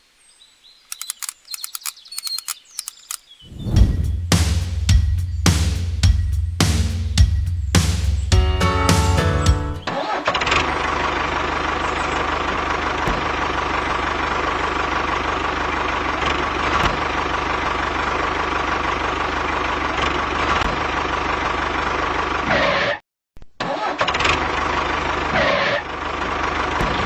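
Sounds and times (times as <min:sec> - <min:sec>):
engine running steadily: 0:10.4 - 0:22.4.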